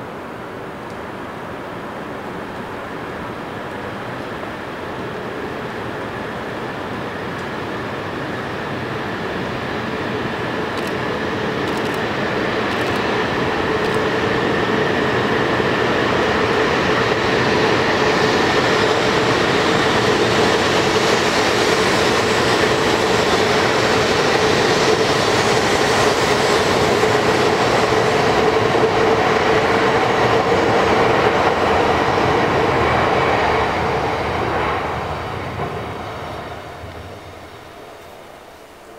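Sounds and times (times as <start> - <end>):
train running noise: 0.0 - 38.9.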